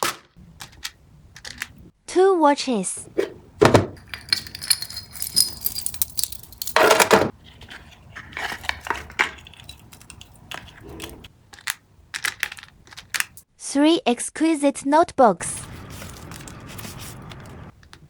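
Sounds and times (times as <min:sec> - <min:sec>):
light clicks and clinks: 0:04.0 - 0:06.8, 0:08.6 - 0:11.7
plastic packaging crinkling: 0:04.0 - 0:13.4.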